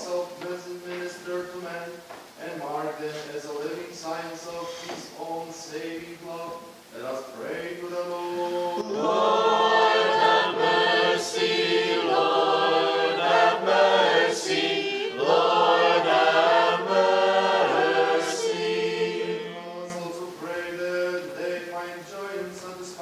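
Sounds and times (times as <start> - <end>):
choir singing unaccompanied chant: 2.7 - 23.0.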